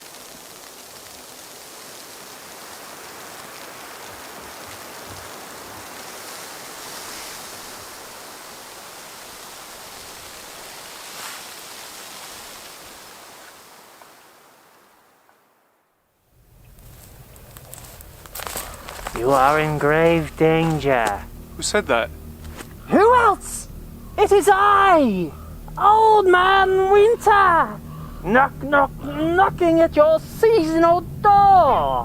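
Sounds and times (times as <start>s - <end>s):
steady rushing noise: 17.8s - 32.0s.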